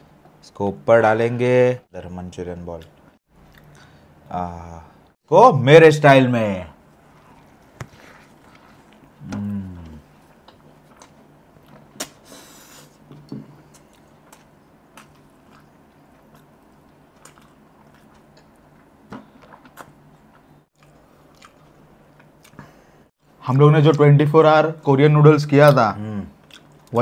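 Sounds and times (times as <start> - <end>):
man chewing wet food: 3.4 - 4.0, 6.8 - 23.0, 26.4 - 27.0
falling voice hum: 9.2 - 10.1.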